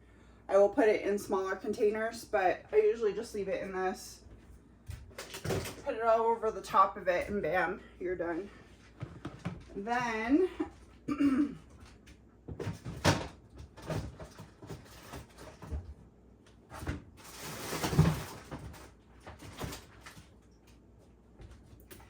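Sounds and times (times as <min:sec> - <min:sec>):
scraping rustle: 0:17.2 - 0:20.3.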